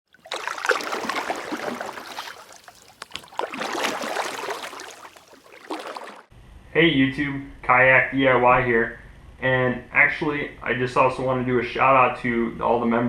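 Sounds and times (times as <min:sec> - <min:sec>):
water splashing and gurgling: 0:00.1 - 0:06.3.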